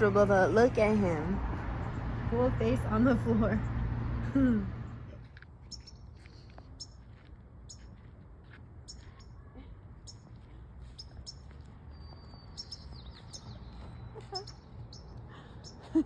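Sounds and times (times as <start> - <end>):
small bird chirping: 5.6 - 7.9, 8.8 - 15.9.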